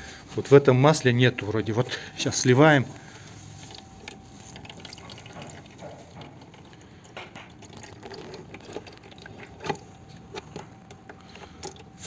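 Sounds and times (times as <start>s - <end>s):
oil trickling from filter: 2.8s - 12.0s.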